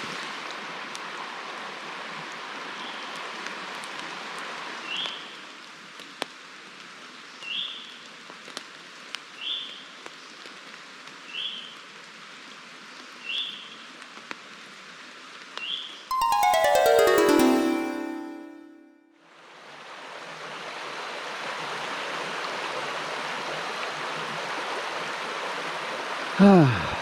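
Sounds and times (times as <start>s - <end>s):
plucked harpsichord-like music sting: 16.1s - 19.1s.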